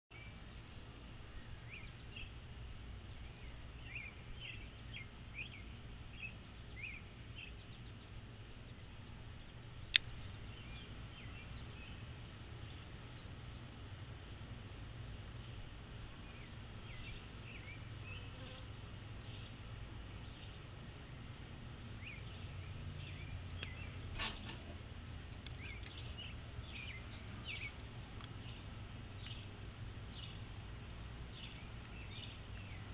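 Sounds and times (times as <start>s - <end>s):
small bird chirping: 0.1s - 14.0s, 15.3s - 21.3s, 21.9s - 32.9s
low steady background rumble: 0.1s - 32.9s
sharp click: 9.9s - 10.2s.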